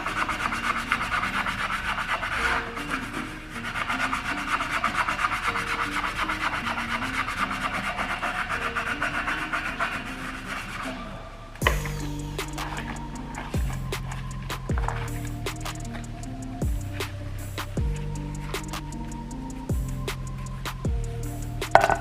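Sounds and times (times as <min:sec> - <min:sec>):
scrub pad scrubbing metal: 0:00.0 - 0:10.9, 0:11.7 - 0:16.2, 0:21.4 - 0:22.0.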